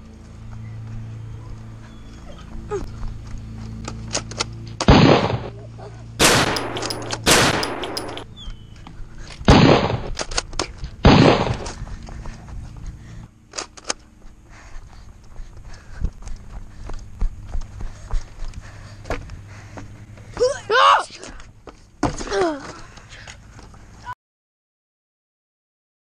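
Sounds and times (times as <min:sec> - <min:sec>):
foam-dart blaster shots: 0:04.8 - 0:05.5, 0:09.5 - 0:10.2, 0:11.0 - 0:11.7.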